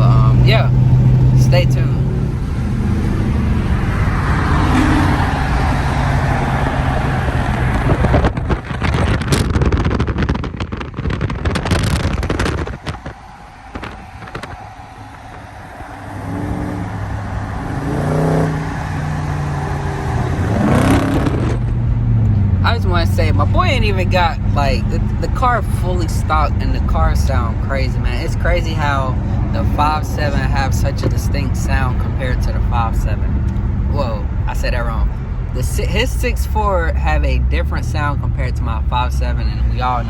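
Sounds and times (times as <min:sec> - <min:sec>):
car engine revving while driving: 0:00.0 - 0:40.0
wind buffeting and rustling: 0:02.0 - 0:35.6.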